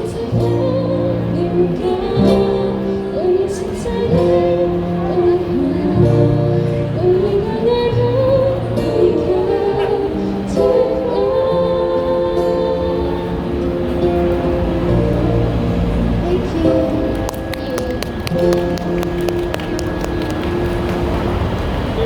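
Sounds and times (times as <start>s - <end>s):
person singing: 0.0s - 15.2s, 16.1s - 20.3s.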